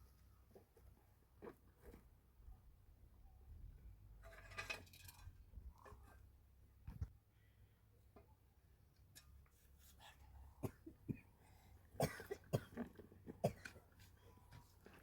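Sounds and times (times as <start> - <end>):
person coughing: 10.6 - 11.2, 12.0 - 12.8.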